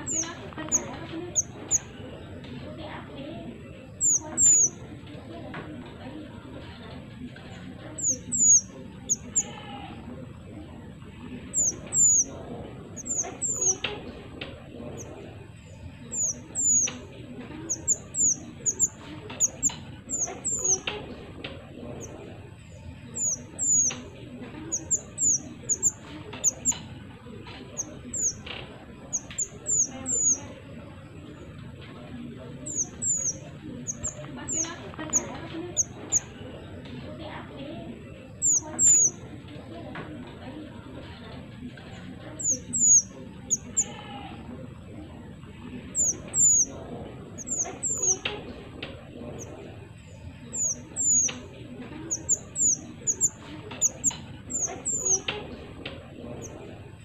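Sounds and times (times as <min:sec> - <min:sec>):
bird chirping: 0:00.0 - 0:02.5, 0:03.7 - 0:05.0, 0:07.5 - 0:09.7, 0:10.4 - 0:21.1, 0:21.9 - 0:36.8, 0:38.1 - 0:39.2, 0:42.4 - 0:44.0, 0:45.8 - 0:48.4, 0:49.3 - 0:55.4.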